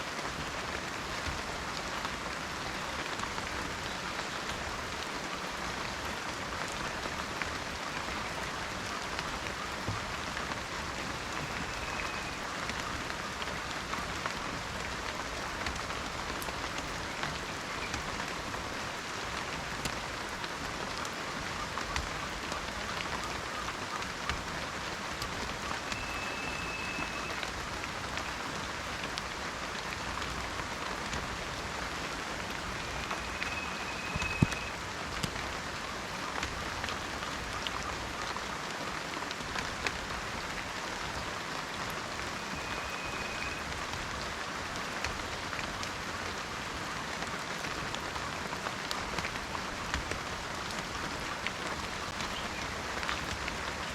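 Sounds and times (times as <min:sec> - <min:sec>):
rain dripping in forest: 0:00.0 - 0:53.9
high whistled tones: 0:25.9 - 0:27.4, 0:32.8 - 0:34.8.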